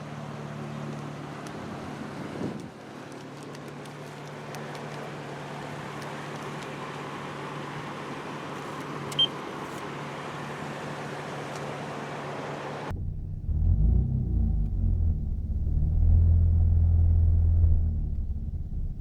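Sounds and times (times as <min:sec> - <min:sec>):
car wash machinery hum and hiss: 0:03.9 - 0:12.9.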